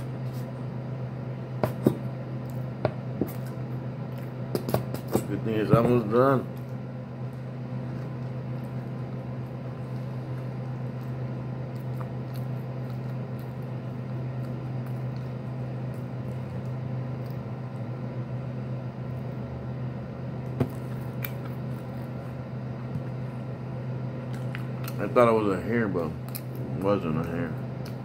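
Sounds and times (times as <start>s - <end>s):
steady low hum: 0.0s - 28.0s
person chewing: 2.4s - 5.2s, 6.5s - 17.9s, 20.6s - 22.5s, 26.2s - 28.0s.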